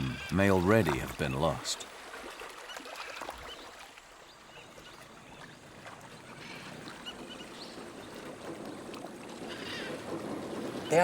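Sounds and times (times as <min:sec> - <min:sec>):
water wash: 0:05.7 - 0:11.0.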